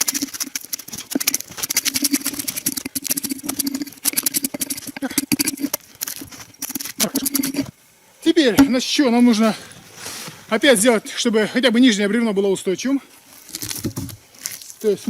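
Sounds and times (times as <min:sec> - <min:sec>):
hand tool scraping bark: 0:00.0 - 0:07.7, 0:09.4 - 0:10.6.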